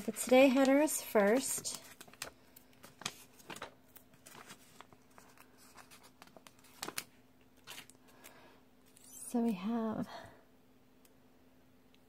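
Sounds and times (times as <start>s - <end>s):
paper stickers rustling: 0.0s - 8.3s
faint steady hum: 0.0s - 12.0s.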